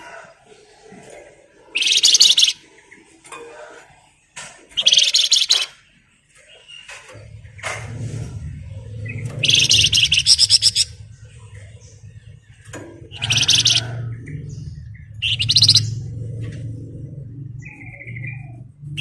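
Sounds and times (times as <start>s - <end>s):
songbird rattling trills: 1.8s - 2.6s, 4.8s - 5.8s, 9.0s - 16.4s
steady low hum: 7.1s - 19.0s.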